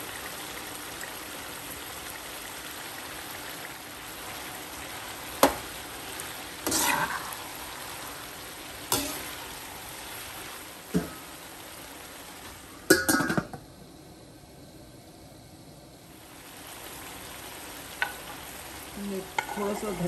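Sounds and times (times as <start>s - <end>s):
meat and onions sizzling in oil: 0.0s - 20.0s
spoon scraping pan: 6.6s - 7.3s, 8.9s - 9.4s, 19.2s - 20.0s
metal spoon knocking on pan: 12.9s - 13.6s, 19.4s - 19.6s.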